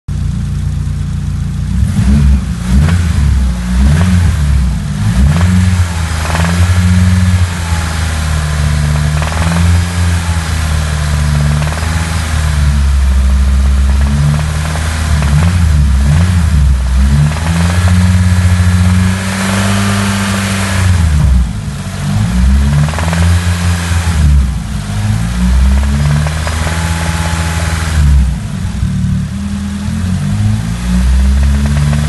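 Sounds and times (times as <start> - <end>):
car engine revving: 0.1 - 32.0
engine knocking: 5.0 - 21.8, 22.5 - 23.6, 25.6 - 27.8, 31.3 - 32.0.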